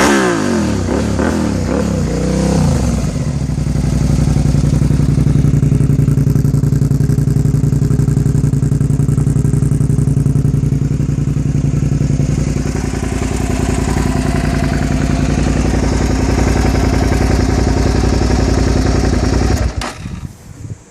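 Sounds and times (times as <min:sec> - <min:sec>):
loud motorcycle engine running: 0:00.0 - 0:20.3.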